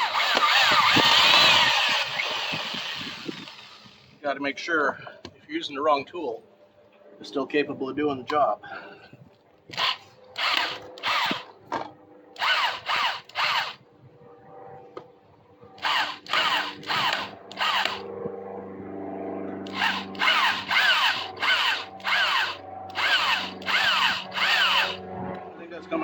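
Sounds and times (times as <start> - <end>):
power drill spinning: 0.0 - 4.2, 9.7 - 11.5, 12.4 - 13.8, 15.8 - 18.0, 19.6 - 25.0
low hum: 0.0 - 26.0.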